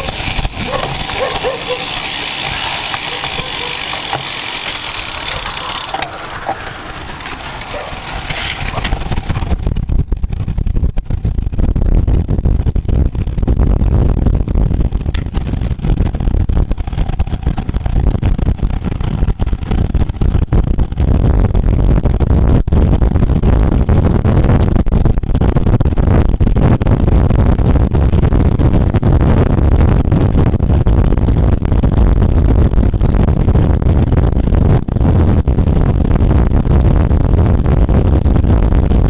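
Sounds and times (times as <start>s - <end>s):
road noise: 0.0s - 10.2s
wind buffeting microphone: 0.0s - 39.0s.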